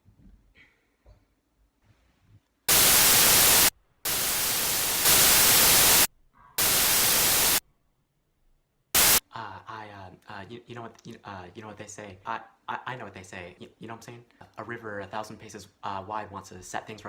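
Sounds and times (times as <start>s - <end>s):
white noise static bursts: 2.7s - 7.6s, 9.0s - 9.2s.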